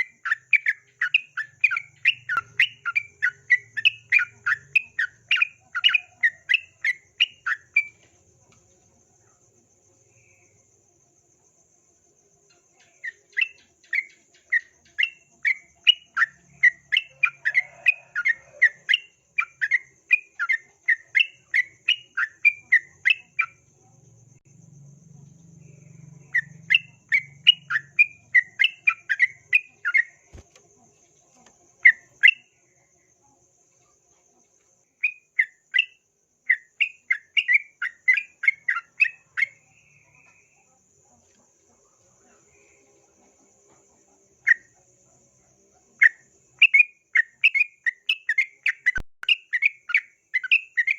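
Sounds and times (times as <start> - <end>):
bulbul singing chirped notes: 0.0 - 8.0, 25.4 - 30.4.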